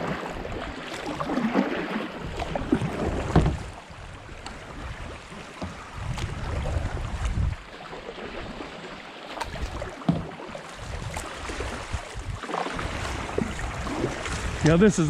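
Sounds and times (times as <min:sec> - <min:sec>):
wind rumbling on microphone: 0:00.0 - 0:07.7, 0:10.8 - 0:15.0
water splashing around kayak: 0:00.0 - 0:15.0.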